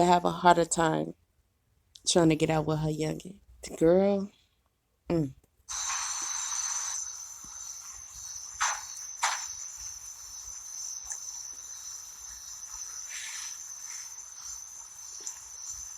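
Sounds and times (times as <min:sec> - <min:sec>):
insect chirring: 0:05.7 - 0:15.9.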